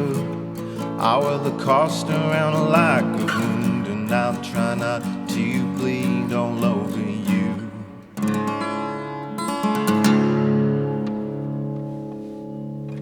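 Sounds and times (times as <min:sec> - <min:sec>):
man singing: 0:00.0 - 0:08.2
acoustic guitar strumming: 0:00.0 - 0:13.0.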